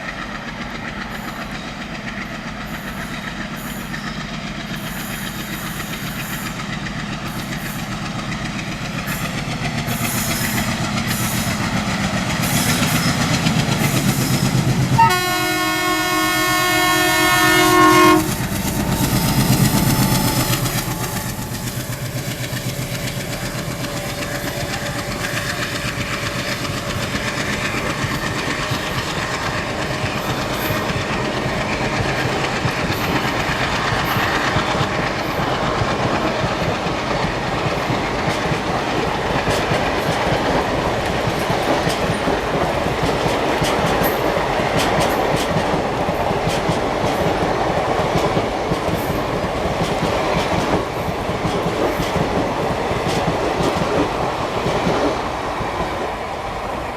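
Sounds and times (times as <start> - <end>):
train wheels clattering on rails: 0.0 - 56.9
locomotive horn chord: 15.0 - 21.6.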